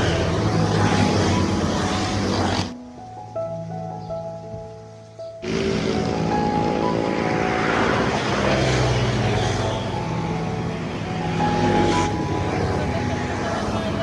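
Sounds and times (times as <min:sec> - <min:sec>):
vehicle engine running: 0:05.4 - 0:14.0.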